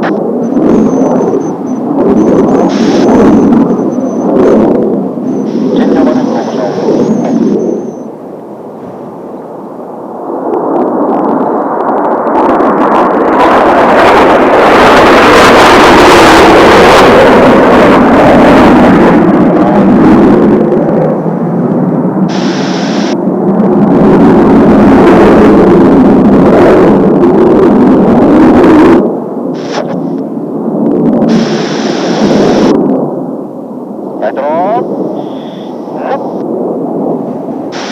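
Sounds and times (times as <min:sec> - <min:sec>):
jet aircraft flying past: 0:00.0 - 0:37.9.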